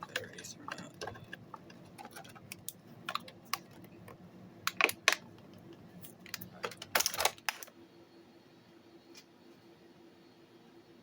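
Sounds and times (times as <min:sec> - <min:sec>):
plastic parts clicking: 0:00.1 - 0:05.2, 0:06.0 - 0:07.7.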